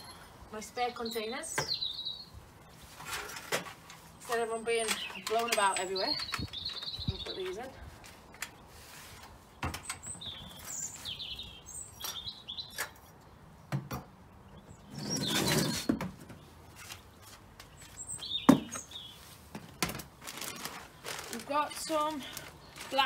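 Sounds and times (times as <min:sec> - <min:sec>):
small birds chirping: 0:00.0 - 0:03.0, 0:04.0 - 0:23.0
plastic containers rustling: 0:18.5 - 0:23.0.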